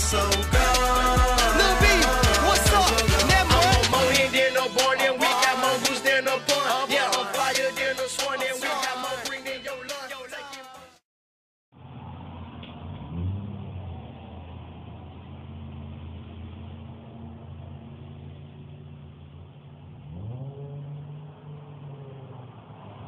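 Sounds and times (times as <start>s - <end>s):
car exhaust idling and revving: 0.0s - 6.6s, 11.7s - 23.0s.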